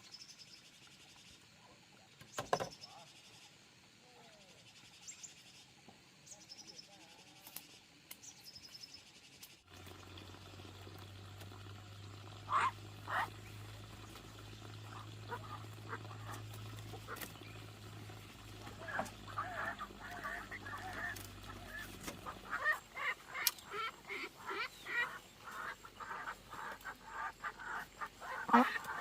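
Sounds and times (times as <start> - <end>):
steady low hum: 9.8 - 29.0
poultry honking calls: 12.5 - 13.3, 14.8 - 17.4, 18.1 - 29.0.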